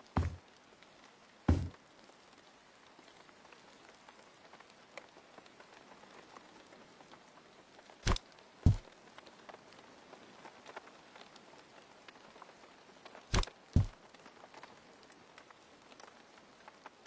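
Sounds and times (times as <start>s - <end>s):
heavy thuds: 0.0s - 0.4s, 1.5s - 1.8s, 8.1s - 8.8s, 13.3s - 13.9s.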